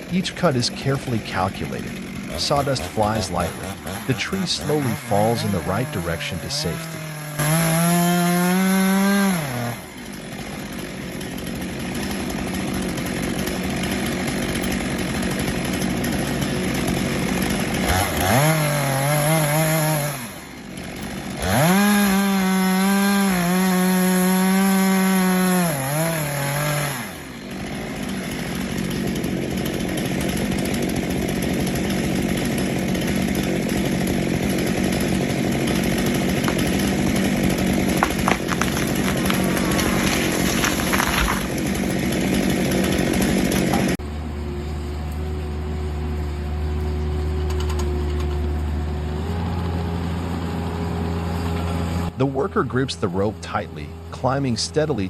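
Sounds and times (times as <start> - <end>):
chainsaw cutting wood: 0.0 - 44.0
chainsaw revving: 0.0 - 44.0.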